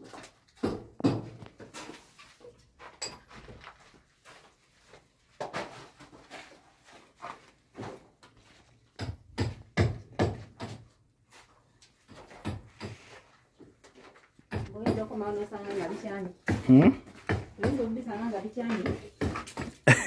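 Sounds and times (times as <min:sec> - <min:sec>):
knocks and thumps: 0:00.6 - 0:01.8, 0:16.4 - 0:18.0.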